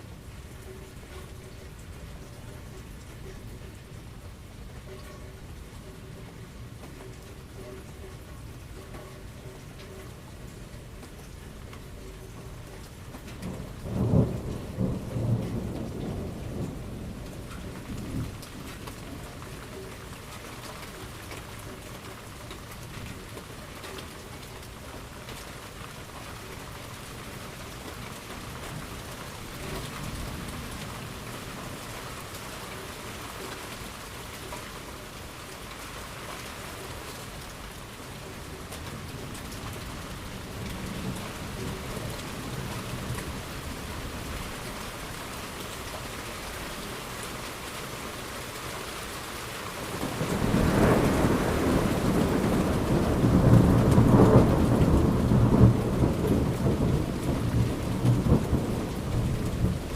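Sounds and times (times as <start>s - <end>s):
steady rain: 0.0s - 59.9s
thunder rumbling: 13.4s - 19.4s, 49.9s - 59.9s.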